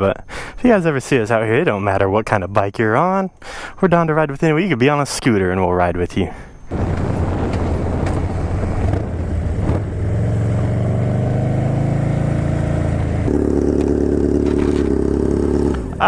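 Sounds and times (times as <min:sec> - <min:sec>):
motorcycle engine running: 0:06.7 - 0:16.0.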